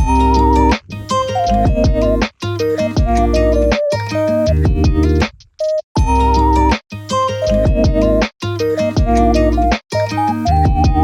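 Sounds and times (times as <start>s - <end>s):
bass line: 0.0s - 2.3s, 3.0s - 3.8s, 4.4s - 5.3s, 6.0s - 6.7s, 7.5s - 8.2s, 10.5s - 11.0s
plucked string melody: 0.0s - 5.3s, 6.0s - 11.0s.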